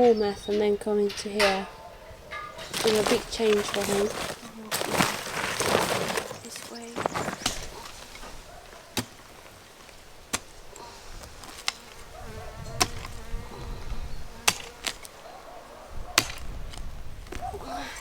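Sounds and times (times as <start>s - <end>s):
digging tool striking hard earth: 2.6s - 12.0s, 12.6s - 13.2s, 14.4s - 15.2s, 16.1s - 17.4s.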